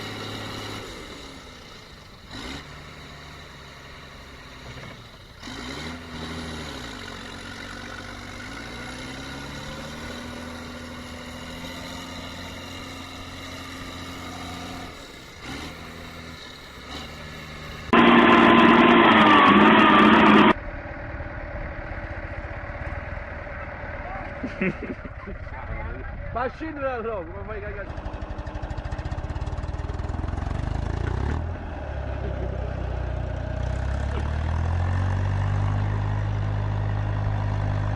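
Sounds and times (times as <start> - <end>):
tractor engine revving: 0.0 - 37.9
loud harsh burst: 17.9 - 20.6.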